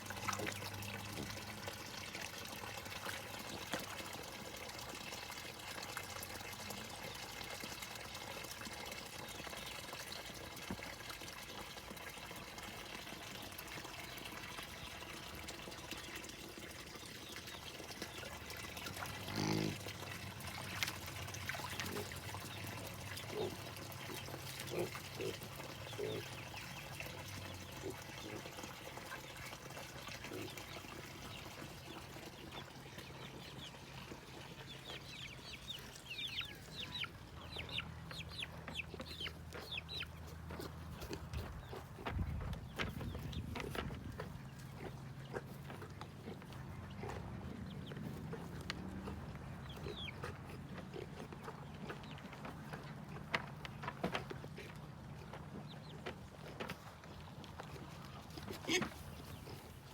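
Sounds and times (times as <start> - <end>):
low grunting sounds: 19.1 - 19.9.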